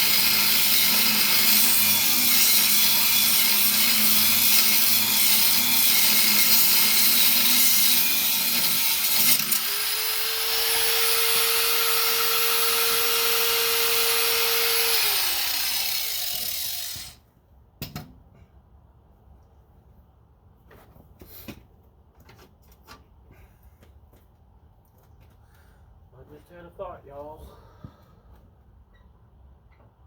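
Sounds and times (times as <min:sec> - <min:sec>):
power tool grinding under load: 0:00.0 - 0:17.2
power tool whine running free: 0:00.0 - 0:17.2.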